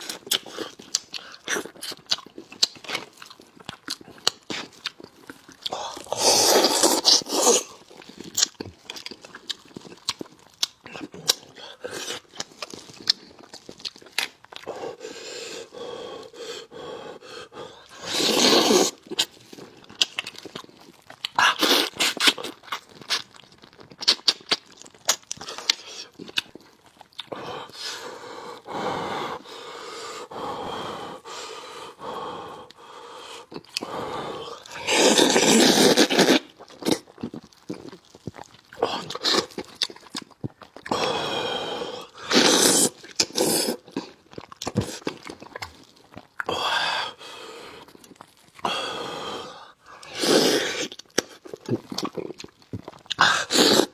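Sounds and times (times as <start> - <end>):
wet chewing: 0.0 - 14.8, 17.8 - 28.2, 34.5 - 46.6, 47.4 - 48.7, 49.6 - 53.9
loud slurps: 6.0 - 7.8, 17.9 - 19.2, 21.4 - 22.5, 34.7 - 37.0, 42.2 - 44.0, 50.0 - 52.1, 53.2 - 53.9
lip smacks: 17.9 - 27.9, 49.9 - 53.9.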